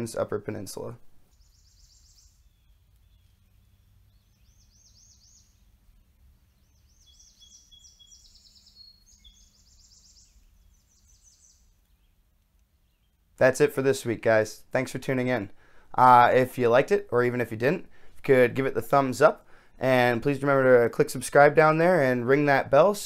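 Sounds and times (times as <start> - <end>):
high-pitched bird chirps and trills: 1.3 - 5.8, 6.4 - 12.2
low steady hum: 8.9 - 23.0.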